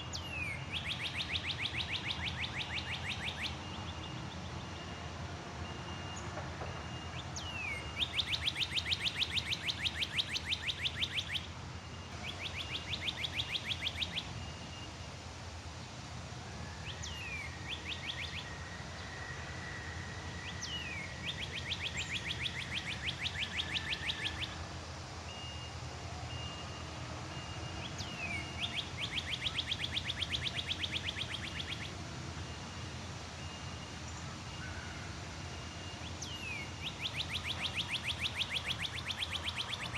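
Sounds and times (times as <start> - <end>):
songbird whistle and trill: 0.0 - 15.2, 16.5 - 39.9.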